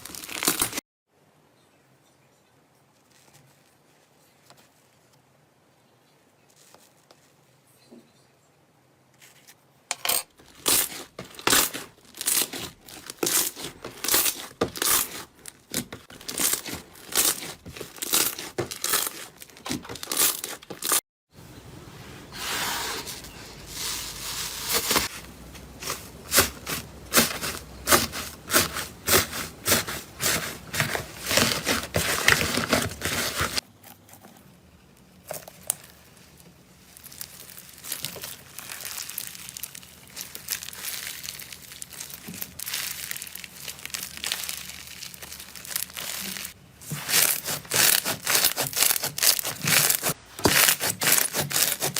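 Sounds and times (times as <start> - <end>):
slime crackling and popping: 0.0 - 0.8, 10.5 - 21.0, 35.3 - 51.9.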